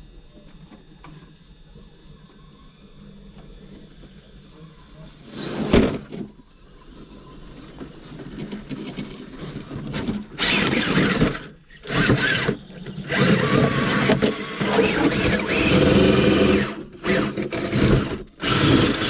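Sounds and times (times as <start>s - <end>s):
electric motor whining: 9.4s - 19.0s.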